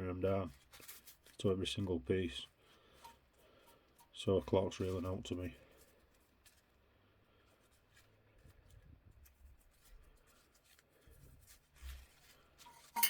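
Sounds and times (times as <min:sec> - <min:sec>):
small parts clicking and rubbing: 0:07.5 - 0:13.0.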